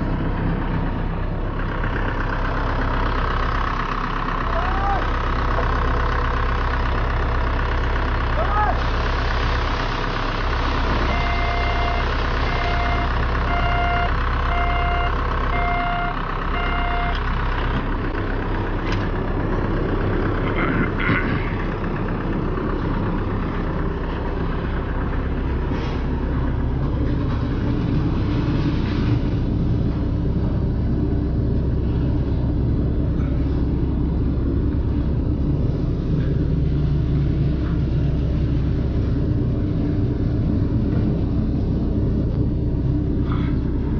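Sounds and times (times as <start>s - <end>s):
diesel truck engine running: 0.0s - 43.9s
reversing alarm beeping: 10.9s - 17.2s.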